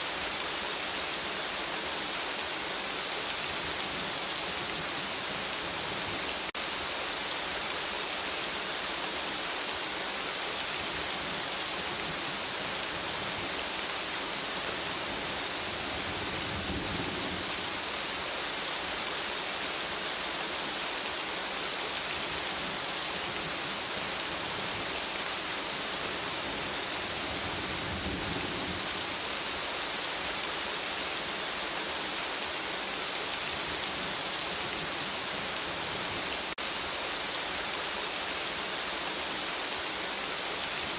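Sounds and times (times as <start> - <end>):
steady rain falling: 0.0 - 40.9
distant thunder rumbles: 15.6 - 17.8, 27.2 - 29.1.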